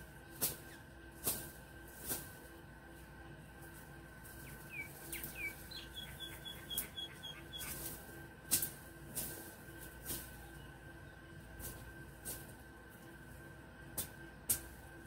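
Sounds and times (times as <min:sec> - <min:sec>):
small bird chirping: 0:04.4 - 0:07.9.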